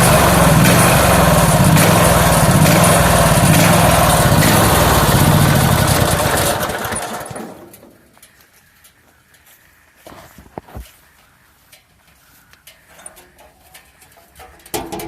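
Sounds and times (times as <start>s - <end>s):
small gasoline engine running: 0.0s - 7.8s.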